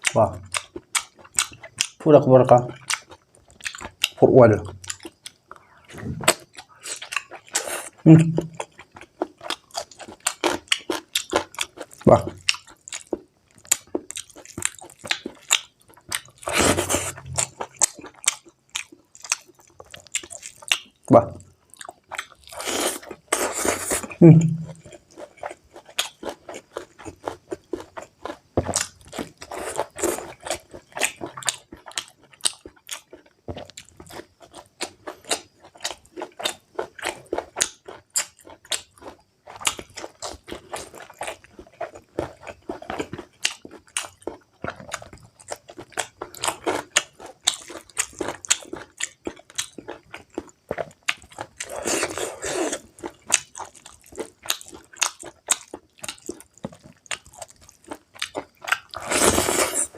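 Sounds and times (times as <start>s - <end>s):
wet chewing mouth sounds: 2.6s - 59.9s.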